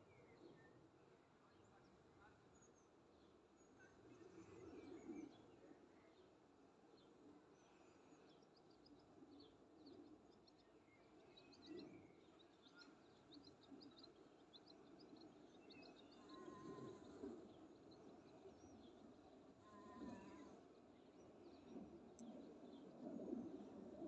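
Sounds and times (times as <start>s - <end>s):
small birds chirping: 7.0s - 23.2s.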